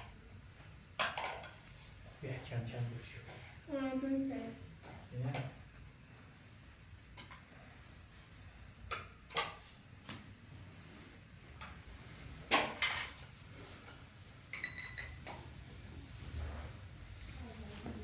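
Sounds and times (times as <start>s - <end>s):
hard objects clinking and knocking: 13.9s - 15.5s.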